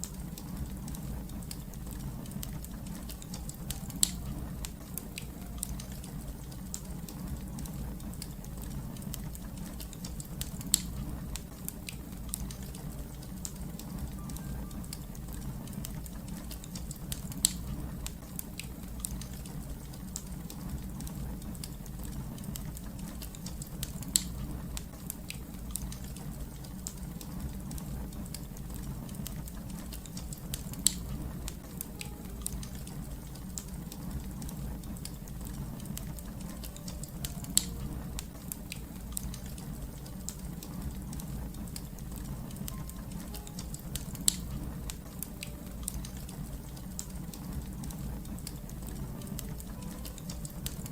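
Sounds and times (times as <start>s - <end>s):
fire crackling: 0.0s - 50.9s
loud fire pops: 0.5s - 14.2s.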